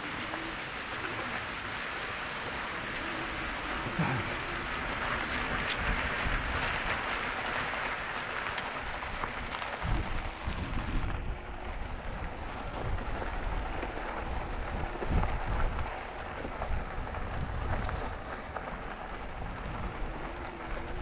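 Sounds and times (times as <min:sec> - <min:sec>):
tyres rolling on trail: 0:00.0 - 0:21.0
wind rushing over microphone: 0:08.7 - 0:21.0.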